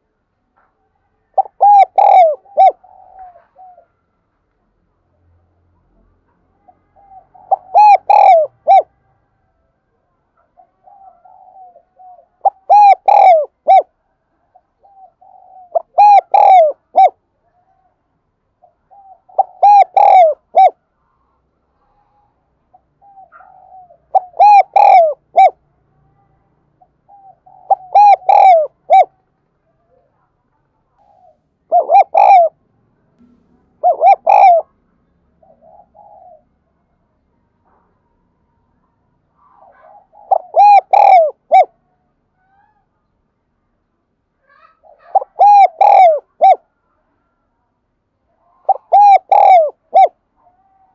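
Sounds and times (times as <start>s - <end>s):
dove cooing: 1.3s - 4.0s, 6.6s - 9.0s, 10.4s - 17.2s, 18.6s - 20.8s, 21.9s - 25.6s, 26.8s - 29.2s, 31.0s - 32.6s, 33.2s - 34.8s, 35.4s - 36.7s, 39.4s - 41.8s, 44.5s - 46.7s, 48.5s - 50.9s.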